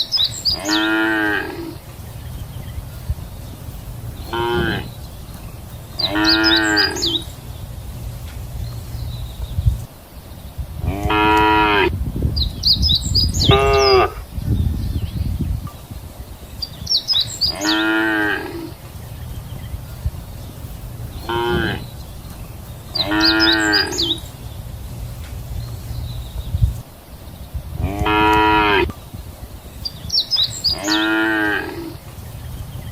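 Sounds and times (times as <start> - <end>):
high bird chirps: 0.0 - 32.9
cattle mooing: 0.5 - 1.8, 4.3 - 4.9, 6.0 - 7.3, 10.8 - 11.9, 17.5 - 18.8, 21.3 - 21.9, 23.0 - 24.2, 27.8 - 28.9, 30.7 - 32.0.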